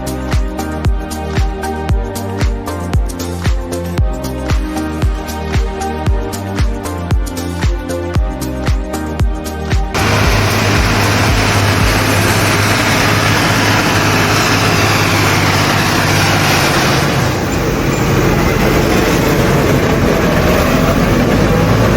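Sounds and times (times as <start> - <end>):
loud rushing noise: 9.9 - 21.9
diesel tractor engine running: 10.0 - 21.9.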